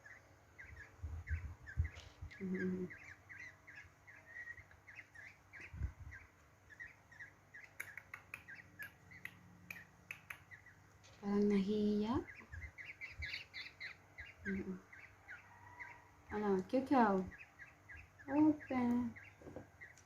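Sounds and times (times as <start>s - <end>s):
young birds begging chirps: 0.0s - 20.0s
sharp clicks: 7.6s - 10.6s.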